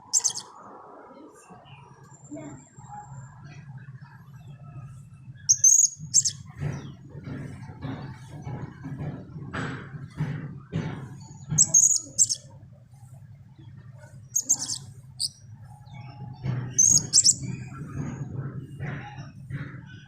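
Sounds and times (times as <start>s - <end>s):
parrot shrill chirps: 0.1s - 0.4s, 11.6s - 12.4s, 14.4s - 15.3s, 16.8s - 17.4s.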